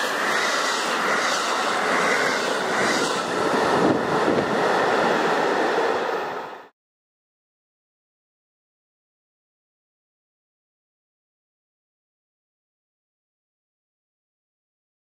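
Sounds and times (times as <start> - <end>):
wheels clickety-clack: 0.0 - 4.4
high-speed train rushing past: 0.0 - 6.8.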